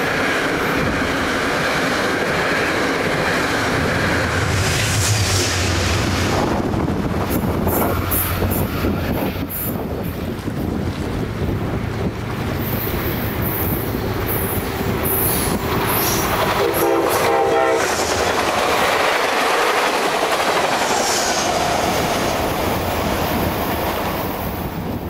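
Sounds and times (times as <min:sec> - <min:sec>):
train wheels rushing on rail: 0:00.0 - 0:25.0
train horn blast: 0:15.1 - 0:18.4.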